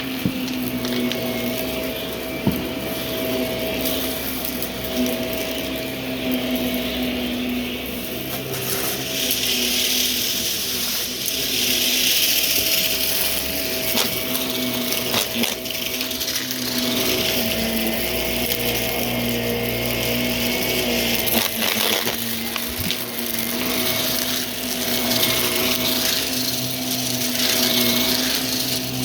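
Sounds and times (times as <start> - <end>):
debris clicks: 0.0 - 1.8, 7.9 - 29.0
vacuum cleaner motor whine: 0.0 - 29.0.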